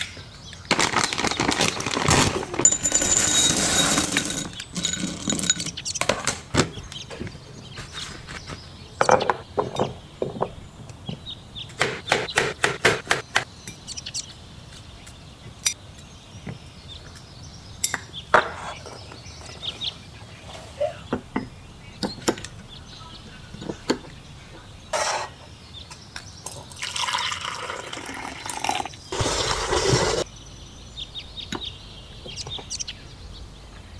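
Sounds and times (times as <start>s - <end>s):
rustling: 0.7s - 5.8s
dishes and utensils clinking: 2.1s - 6.4s.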